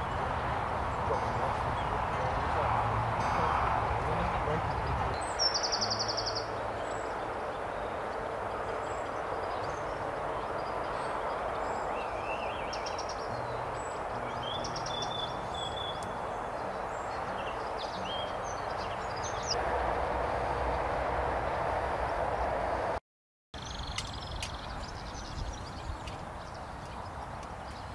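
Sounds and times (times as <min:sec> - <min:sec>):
small birds chirping: 0:00.0 - 0:19.6, 0:23.6 - 0:27.9.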